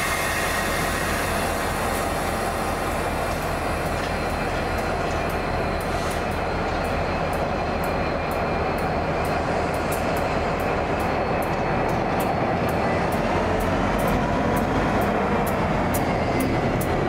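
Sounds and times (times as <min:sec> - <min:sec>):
train rumbling: 0:00.0 - 0:17.0
sharp light ticks: 0:06.7 - 0:17.0.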